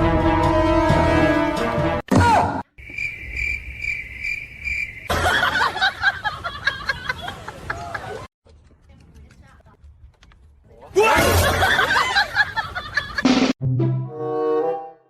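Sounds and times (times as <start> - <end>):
music: 0.0 - 2.1, 13.4 - 15.0
jumble of chirps and squeaks: 2.8 - 5.1
pulsing high chirping: 2.8 - 5.5.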